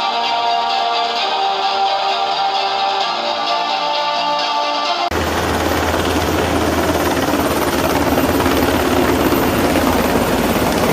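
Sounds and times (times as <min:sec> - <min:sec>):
music: 0:00.0 - 0:10.9
helicopter rotor and turbine: 0:05.1 - 0:10.9.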